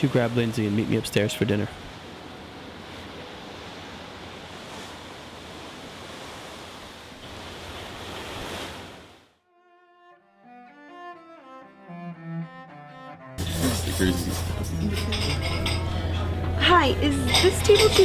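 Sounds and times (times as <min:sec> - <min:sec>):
sea: 0:00.0 - 0:09.4
wind: 0:00.0 - 0:09.4
quiet music: 0:09.5 - 0:18.0.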